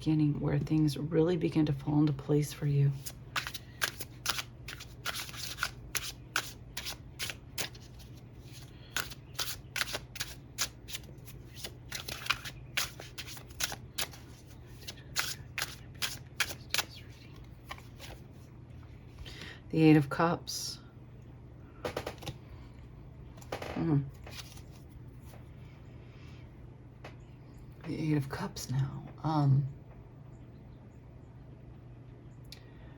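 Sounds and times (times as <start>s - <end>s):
faint low hum: 0.0s - 32.9s
cards being shuffled: 2.9s - 18.5s, 24.1s - 25.4s.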